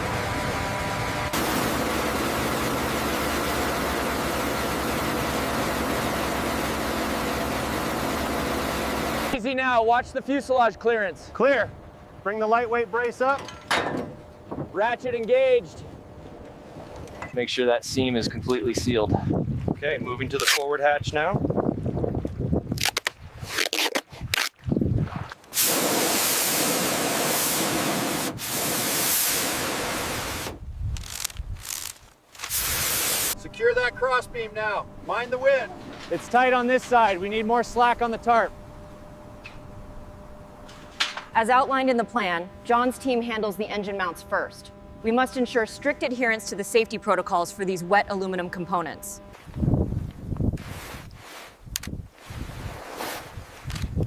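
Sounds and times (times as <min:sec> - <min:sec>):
heavy machinery low rumble: 0:00.0 - 0:17.4, 0:32.6 - 0:50.6
loud even hiss: 0:25.5 - 0:33.4.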